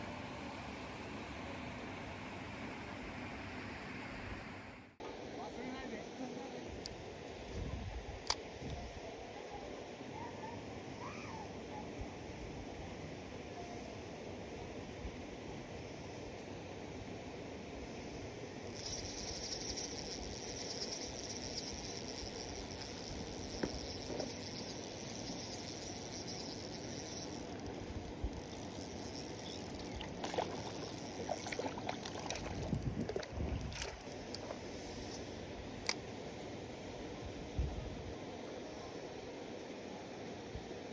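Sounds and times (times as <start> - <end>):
steady outdoor hiss: 0.0 - 40.9
fishing tackle clicks and knocks: 18.7 - 34.6.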